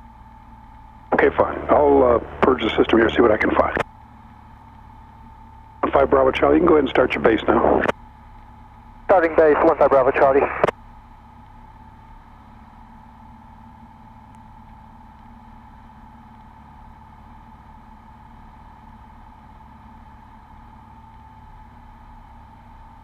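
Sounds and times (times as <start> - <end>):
aircraft engine drone: 0.0 - 23.0
high whine: 1.0 - 8.0, 9.1 - 10.8.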